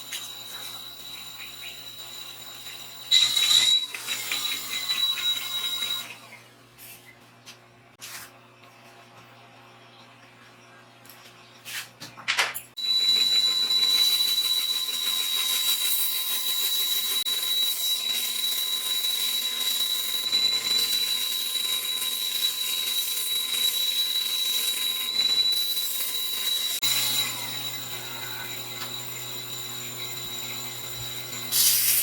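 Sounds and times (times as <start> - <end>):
belt sander whining: 12.8 - 32.0.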